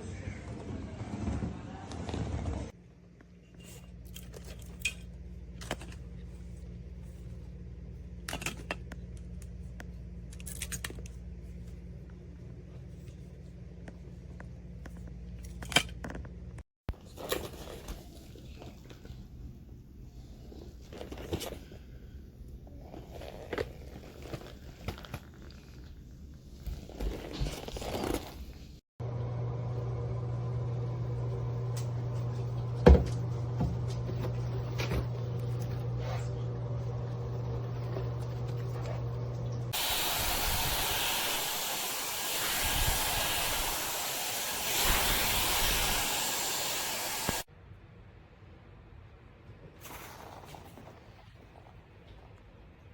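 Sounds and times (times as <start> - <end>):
rustling and crinkling: 16.2 - 28.8, 49.5 - 52.9
hair dryer blowing air: 39.7 - 47.5.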